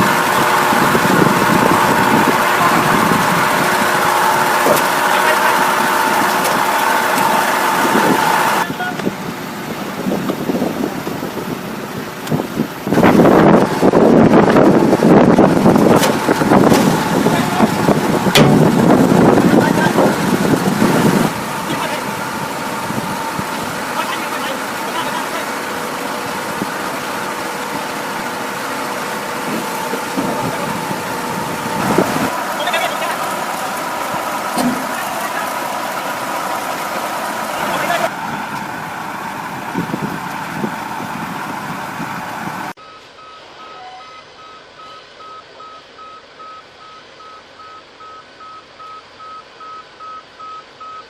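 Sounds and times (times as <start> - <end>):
rough engine rumble: 0.0 - 50.9
heavy vehicle engine whine: 0.0 - 51.0
low thuds: 12.3 - 23.7.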